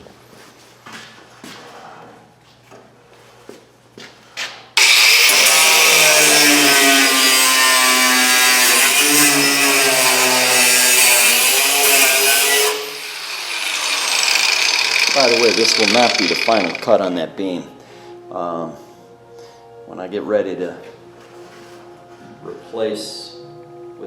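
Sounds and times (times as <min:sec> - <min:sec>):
power saw cutting steel: 0:04.8 - 0:17.0.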